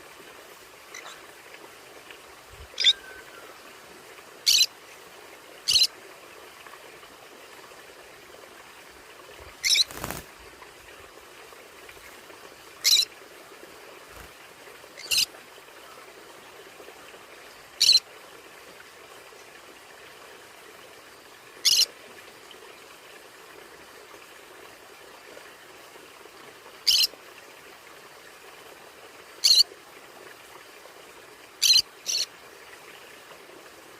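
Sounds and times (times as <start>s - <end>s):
faint steady hiss: 0.0s - 33.9s
parrot squawking: 4.5s - 4.7s, 9.6s - 10.0s, 12.8s - 13.0s.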